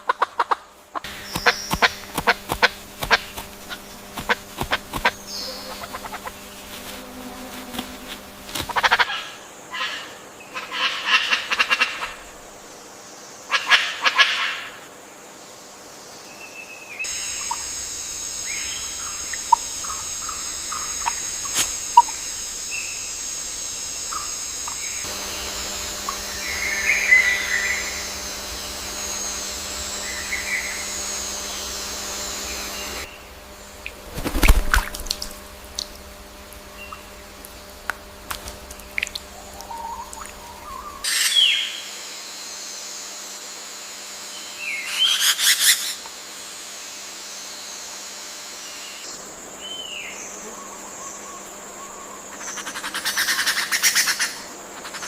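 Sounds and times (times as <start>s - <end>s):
bursts of bird calls: 1.0s - 6.7s, 23.9s - 34.0s
bird chirps: 1.1s - 4.4s, 24.1s - 33.3s.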